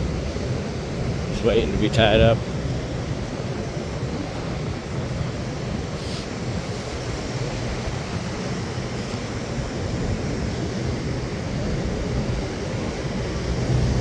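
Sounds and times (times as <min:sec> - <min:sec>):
surf rushing: 0:00.0 - 0:14.0
wind buffeting microphone: 0:00.0 - 0:14.0.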